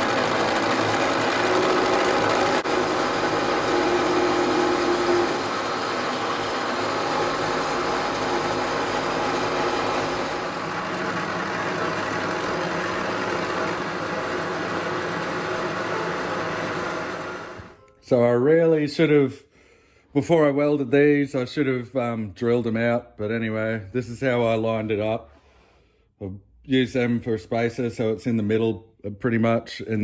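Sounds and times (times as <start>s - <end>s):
power tool motor running: 0.0s - 17.8s.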